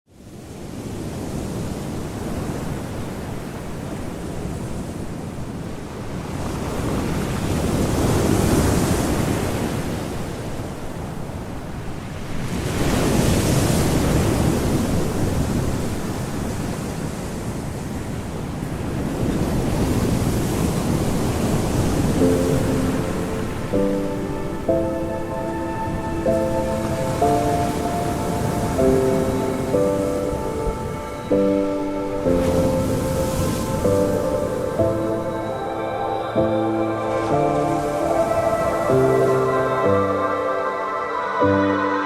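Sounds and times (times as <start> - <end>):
ocean waves washing in: 0.1 - 42.0.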